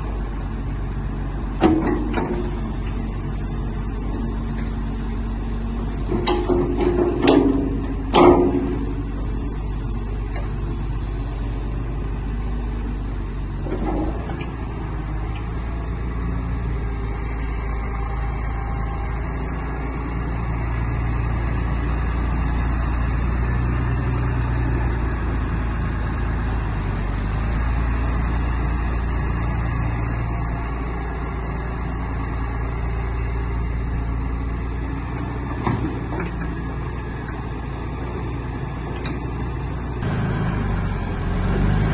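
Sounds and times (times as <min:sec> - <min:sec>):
diesel excavator engine running: 0:00.0 - 0:41.9
metal clank: 0:06.0 - 0:09.0.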